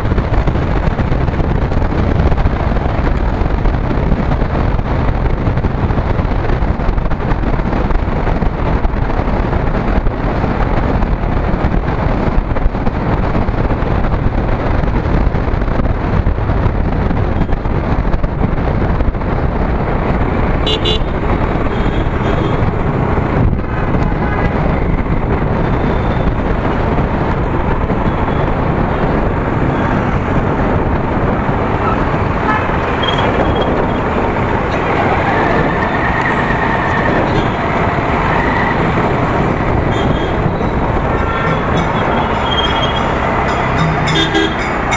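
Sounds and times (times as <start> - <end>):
motorcycle road noise: 0.0 - 44.9
wind rush: 0.0 - 44.9
short horn toot: 41.2 - 44.9.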